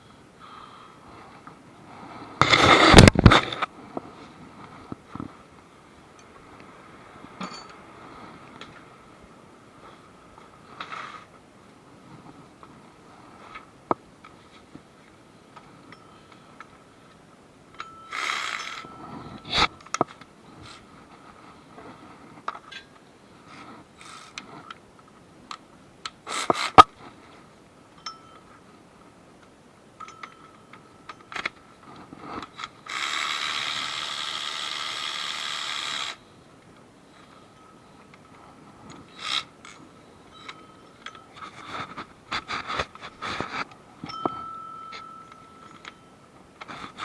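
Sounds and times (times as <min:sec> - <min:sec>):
steady whirring noise: 0:00.0 - 0:47.0
hand tools clanking on metal: 0:07.4 - 0:07.8, 0:30.0 - 0:31.4.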